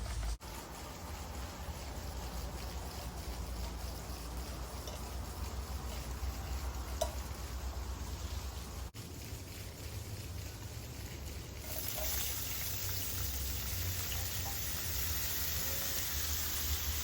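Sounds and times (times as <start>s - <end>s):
food sizzling in a pan: 11.6s - 17.0s.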